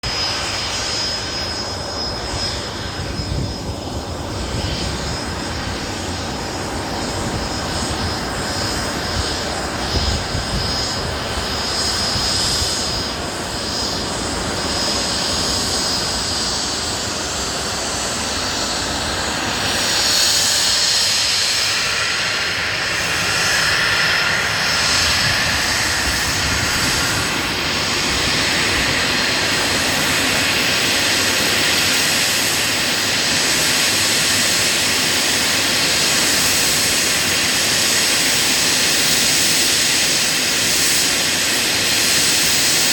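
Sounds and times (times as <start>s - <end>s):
jet engines whining: 0.0s - 42.9s.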